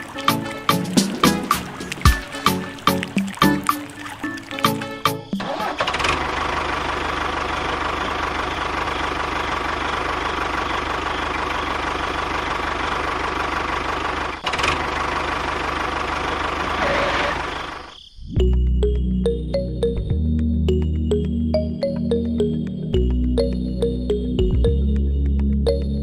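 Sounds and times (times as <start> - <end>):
small petrol engine running: 5.4 - 17.9.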